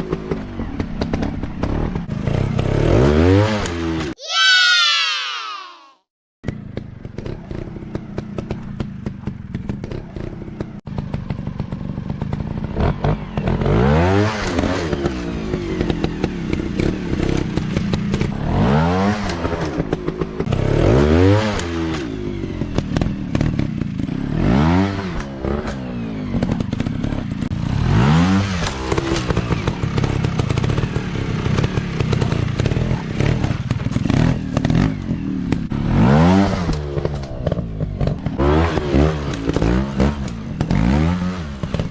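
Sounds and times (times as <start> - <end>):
dirt bike engines revving: 12.6 - 41.9.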